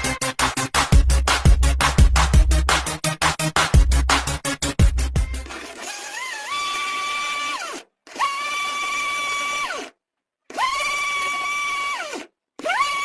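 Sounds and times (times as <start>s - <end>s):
mixer grinder motor whining: 5.3s - 13.0s.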